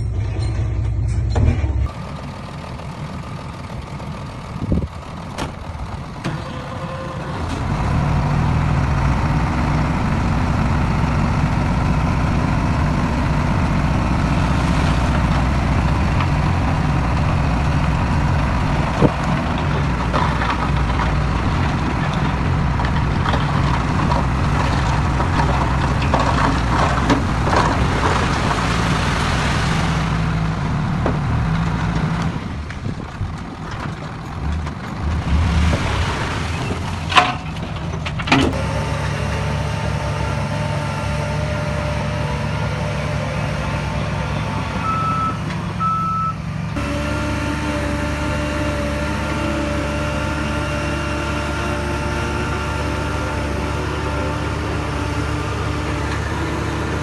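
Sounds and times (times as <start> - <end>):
clanks and knocks: 0.0 - 2.0, 18.4 - 28.6, 31.0 - 35.8, 36.7 - 38.6
diesel machinery running: 0.0 - 57.0.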